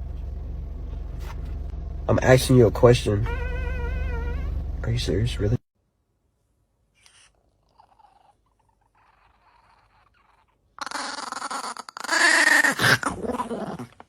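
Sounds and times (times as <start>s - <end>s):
animal's wavering vocal call: 3.2s - 4.6s, 7.7s - 14.0s.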